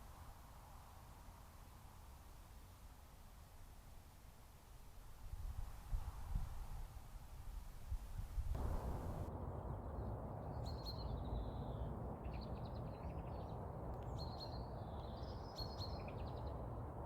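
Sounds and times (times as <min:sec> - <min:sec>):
songbirds singing: 0:10.4 - 0:16.8.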